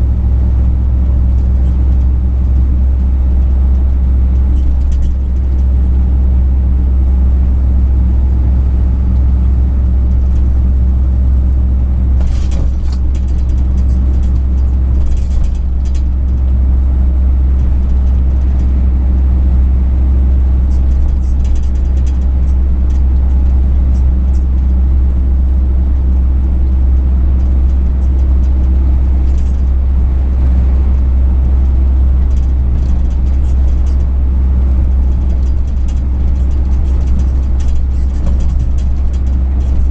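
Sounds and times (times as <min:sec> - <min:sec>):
truck engine and road drone: 0:00.0 - 0:39.9
faint ticks and rattles: 0:01.2 - 0:05.8, 0:12.1 - 0:18.9, 0:20.2 - 0:39.9.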